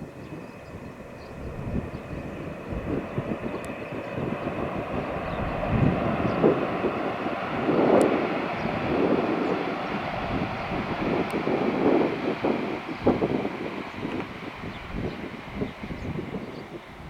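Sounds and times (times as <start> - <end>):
high-speed train roaring: 0.0 - 17.0
wind buffeting microphone: 0.0 - 17.0.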